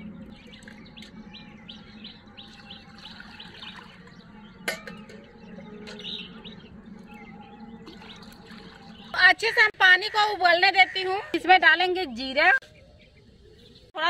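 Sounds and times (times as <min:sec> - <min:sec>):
small birds chirping: 0:00.0 - 0:14.0
metal jug clinking on bucket: 0:04.6 - 0:06.1.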